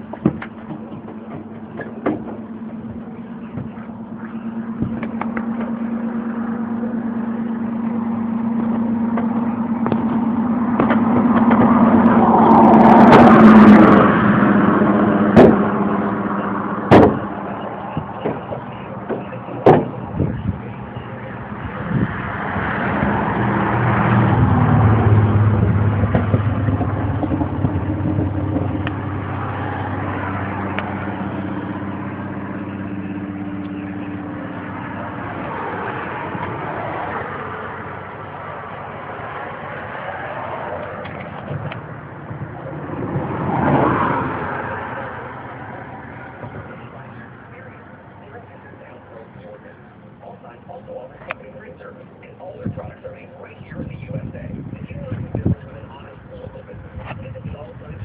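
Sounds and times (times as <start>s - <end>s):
sharp knocks: 0.0s - 4.0s, 8.7s - 11.9s, 15.3s - 15.7s, 16.9s - 20.0s
pickup truck engine running: 0.0s - 58.0s.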